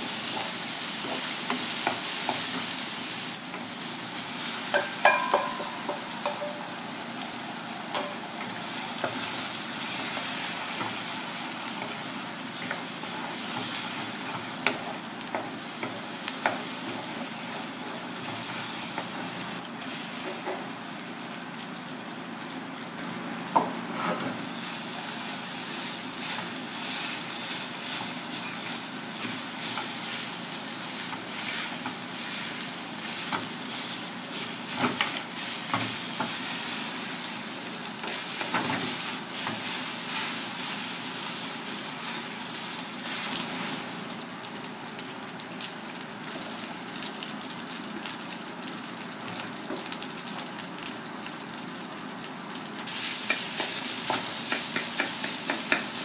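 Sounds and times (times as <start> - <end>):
egg and rice sizzling in pan: 0.0 - 56.0.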